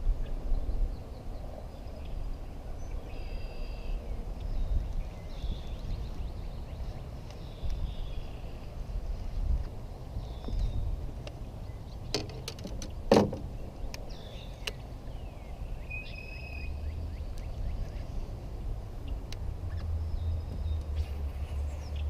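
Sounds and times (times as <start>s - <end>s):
wind rumble on microphone: 0.0s - 22.0s
birds chirping and whistling: 0.6s - 12.4s, 13.5s - 18.4s.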